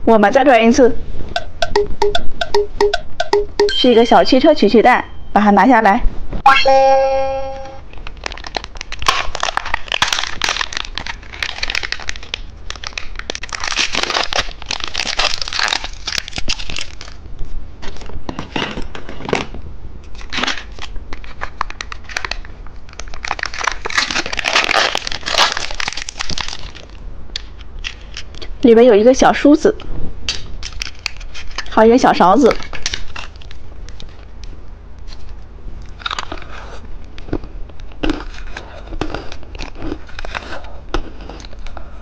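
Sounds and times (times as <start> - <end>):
plastic packaging crinkling: 7.9 - 28.5, 30.3 - 31.8, 32.4 - 34.4, 35.0 - 41.8.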